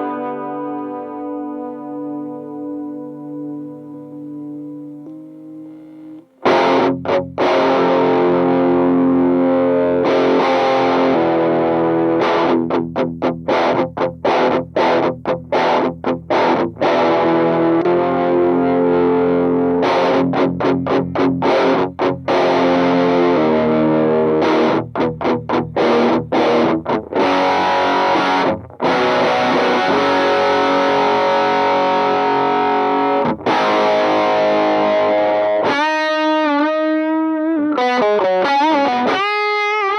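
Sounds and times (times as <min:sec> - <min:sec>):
distorted electric guitar riff: 0:00.0 - 0:39.9.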